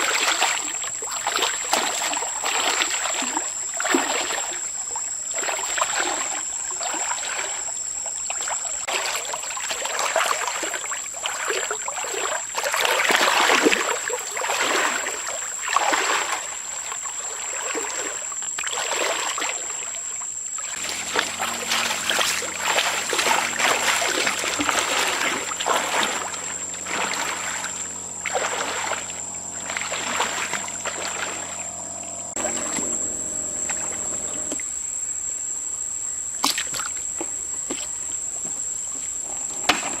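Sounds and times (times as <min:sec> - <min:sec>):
water splashing and sloshing: 0:00.0 - 0:40.0
steady low hum: 0:20.7 - 0:36.2.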